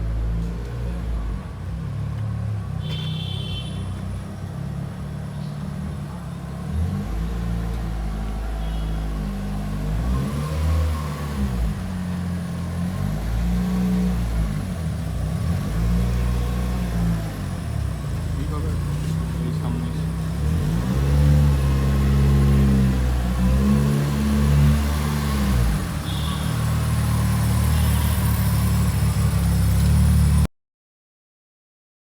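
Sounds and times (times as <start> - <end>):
car engine revving through gears: 9.6 - 27.9.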